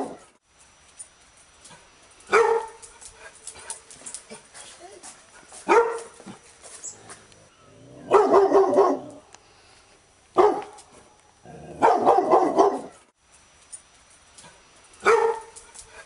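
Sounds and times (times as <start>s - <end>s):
dog barking: 2.3s - 2.8s, 5.6s - 6.2s, 8.0s - 9.2s, 10.4s - 10.8s, 11.8s - 13.0s, 15.0s - 15.6s.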